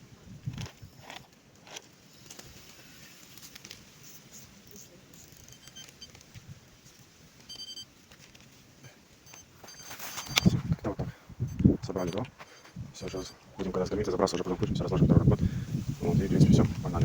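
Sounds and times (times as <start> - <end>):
short high-pitched beeps: 4.8 - 6.2, 7.5 - 7.9, 9.2 - 14.6.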